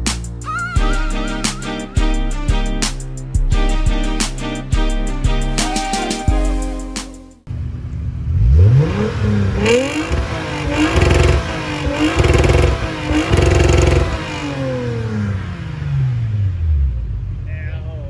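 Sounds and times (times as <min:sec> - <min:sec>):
car engine revving: 0:07.5 - 0:18.0.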